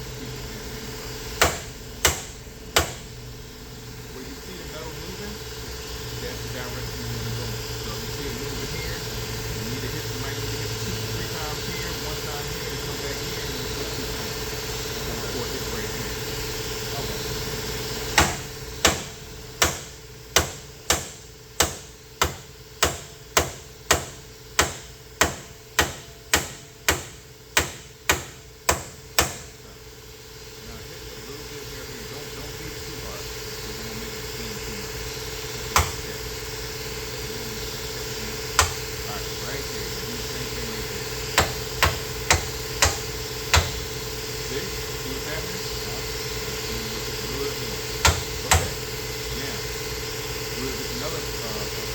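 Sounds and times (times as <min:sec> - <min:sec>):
machine hum: 0:00.0 - 0:51.9
hammer striking sheet metal: 0:01.4 - 0:03.1, 0:18.2 - 0:29.5, 0:35.7 - 0:36.1, 0:38.6 - 0:38.9, 0:41.4 - 0:43.9, 0:48.0 - 0:48.8.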